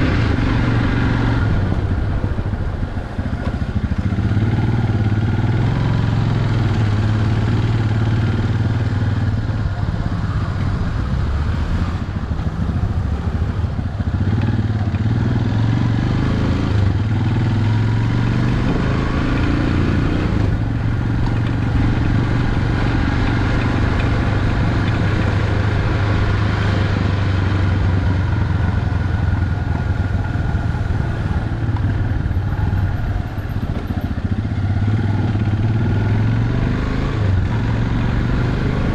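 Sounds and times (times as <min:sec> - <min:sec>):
road noise: 0:00.0 - 0:38.9
vehicle engine humming: 0:00.0 - 0:38.9.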